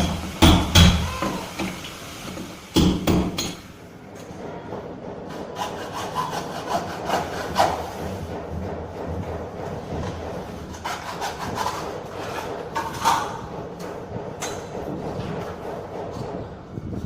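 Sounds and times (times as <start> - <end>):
sharp knocks: 0.0 - 1.7, 2.8 - 3.6
hand tool scraping material: 5.4 - 9.4, 10.0 - 13.2.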